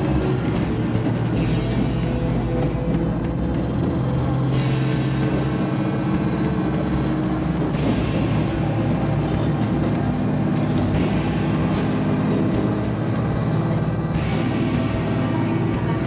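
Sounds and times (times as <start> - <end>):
diesel railcar engine drone: 0.0 - 16.0
wheel and rail noise: 0.0 - 16.0.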